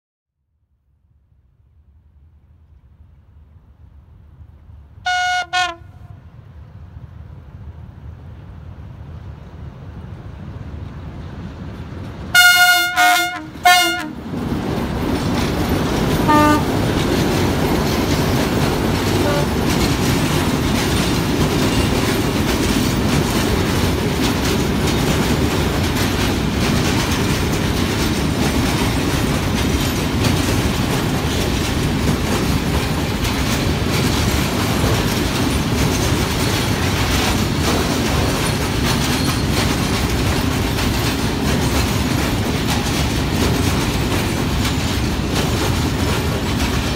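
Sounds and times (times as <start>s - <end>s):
train rumbling past: 1.6s - 46.9s
train horn blasts: 5.0s - 6.2s, 12.3s - 14.2s, 16.2s - 16.8s, 19.2s - 19.6s
wheel clatter over rail joints: 13.5s - 46.9s.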